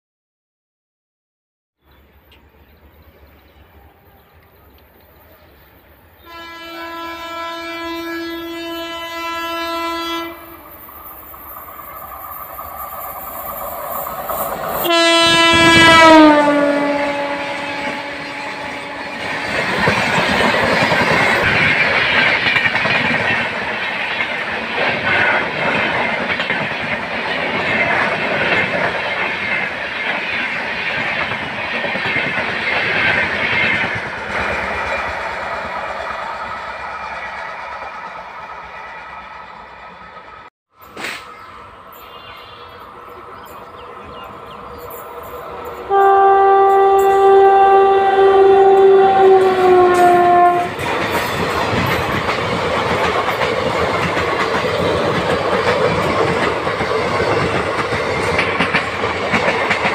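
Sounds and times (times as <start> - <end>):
train coaches rumbling past: 1.8 - 59.9
locomotive horn blast: 6.2 - 10.8, 14.8 - 19.8, 45.9 - 50.8.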